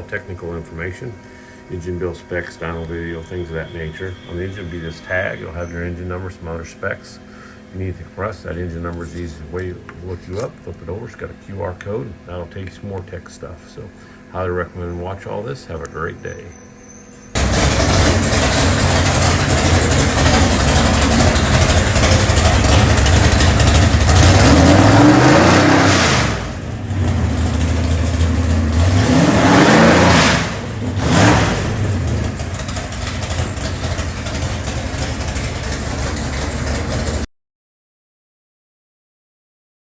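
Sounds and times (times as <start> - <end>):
car engine revving: 17.4 - 37.3.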